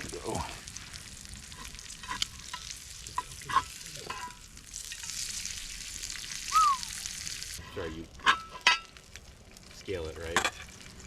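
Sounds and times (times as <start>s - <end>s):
food sizzling in a frying pan: 0.0s - 11.0s
utensil scraping a pan: 1.5s - 4.4s.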